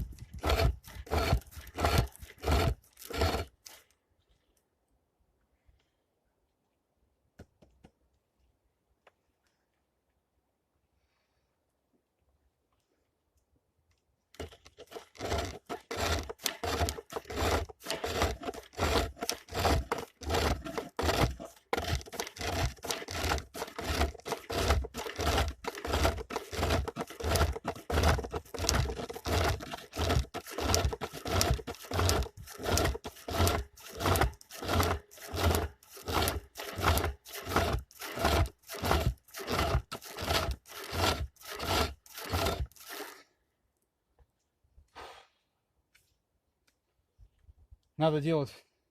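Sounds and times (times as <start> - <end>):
lathe tool scraping wood: 0.0 - 3.8, 14.4 - 43.2.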